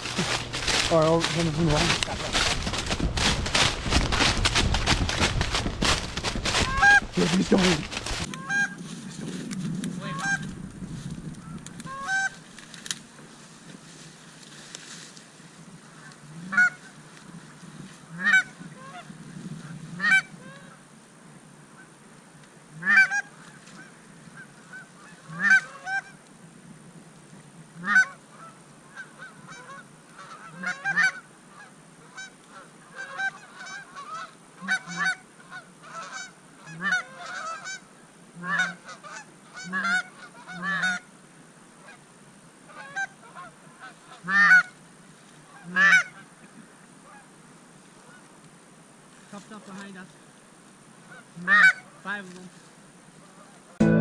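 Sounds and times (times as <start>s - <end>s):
geese honking: 0.0s - 8.7s, 29.0s - 37.8s, 38.4s - 41.0s, 42.7s - 44.7s, 45.6s - 46.2s, 51.1s - 52.0s.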